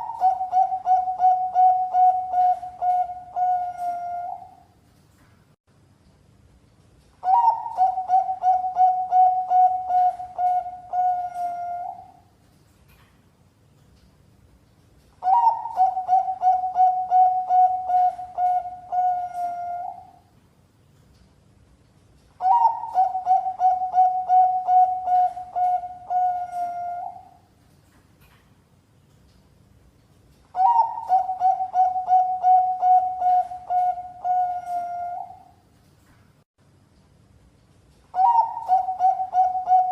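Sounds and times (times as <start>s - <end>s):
dove cooing: 0.0s - 4.6s, 7.2s - 12.2s, 15.2s - 20.2s, 22.4s - 27.4s, 30.6s - 35.5s, 38.2s - 39.9s.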